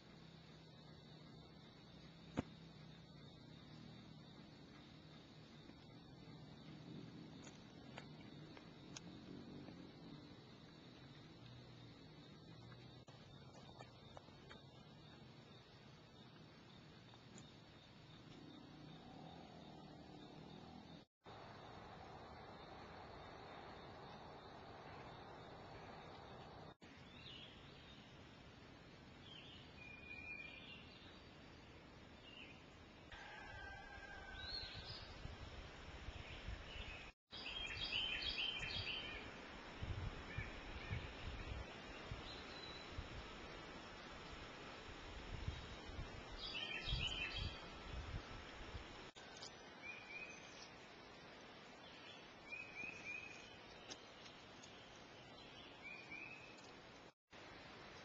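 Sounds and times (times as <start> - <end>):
bird chirping: 36.4 - 39.3.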